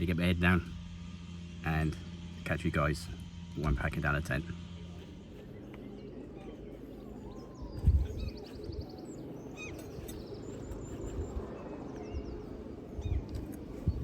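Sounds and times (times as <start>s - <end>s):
low background rumble: 0.0s - 14.0s
small birds chirping: 1.8s - 14.0s
bird trill: 5.4s - 14.0s.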